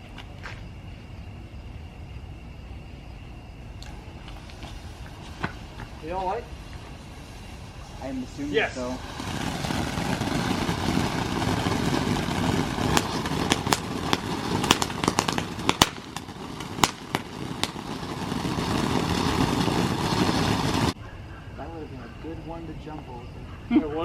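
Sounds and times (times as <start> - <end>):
ground firework hissing: 0.0 - 21.0
firework crackles and pops: 3.8 - 21.0.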